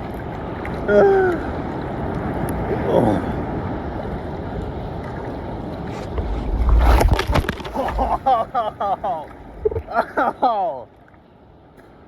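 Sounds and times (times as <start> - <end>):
ocean surf churning: 1.2 - 10.2
water gurgling and bubbling: 5.3 - 8.4, 9.3 - 10.0
wave crashing: 5.7 - 9.9.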